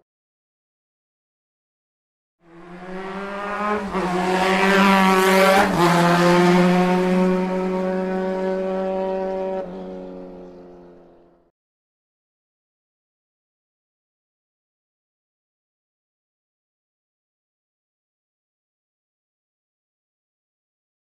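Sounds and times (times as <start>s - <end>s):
motorcycle engine running: 6.2s - 11.4s.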